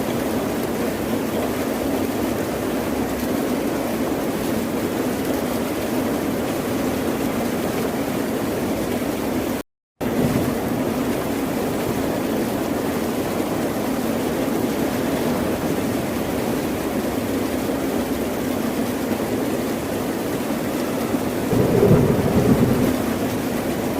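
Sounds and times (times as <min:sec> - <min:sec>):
ocean waves and surf: 0:14.2 - 0:17.1, 0:21.1 - 0:23.9.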